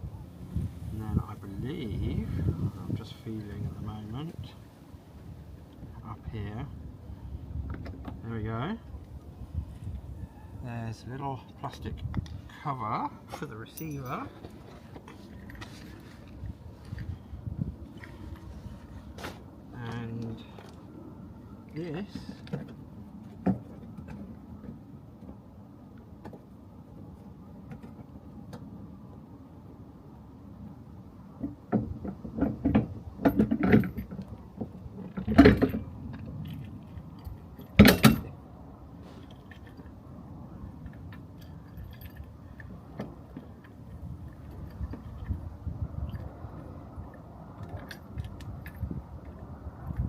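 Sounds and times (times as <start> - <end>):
metal tow bar clicks and clunks: 31.4 - 38.4.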